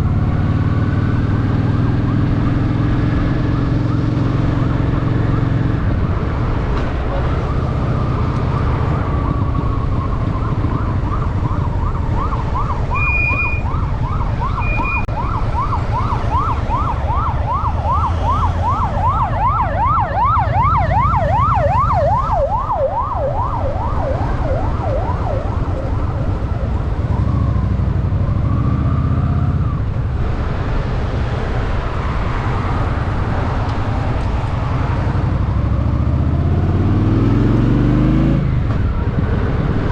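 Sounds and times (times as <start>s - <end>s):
motorcycle engine rumble: 0.0s - 37.8s, 38.4s - 39.9s
emergency siren wailing and yelping: 7.0s - 30.0s.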